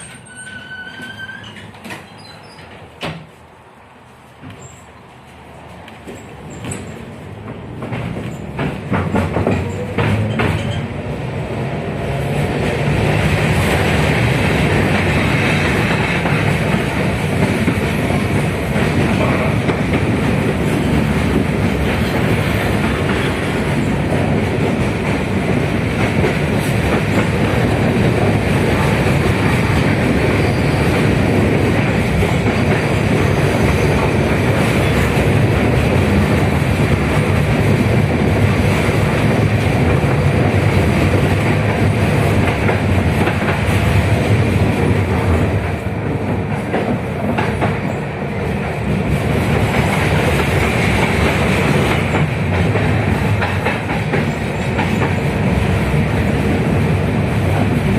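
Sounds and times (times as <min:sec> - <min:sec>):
tram running rumble and hiss: 0:00.0 - 0:57.9.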